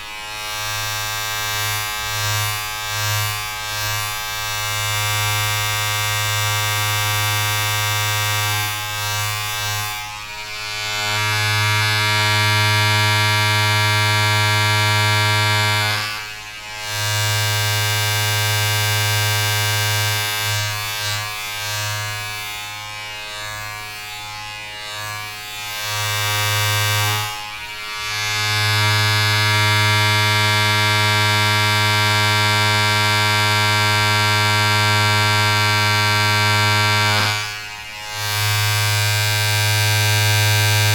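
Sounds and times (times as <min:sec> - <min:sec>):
electric buzz: 0:00.0 - 0:40.9.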